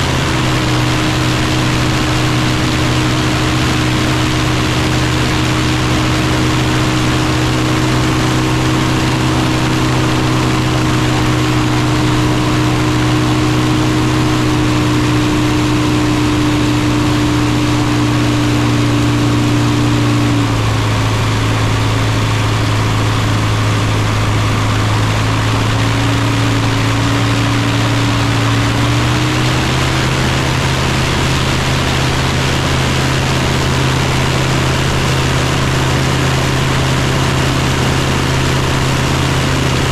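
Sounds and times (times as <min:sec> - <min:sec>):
ultralight engine and propeller: 0:00.0 - 0:39.9.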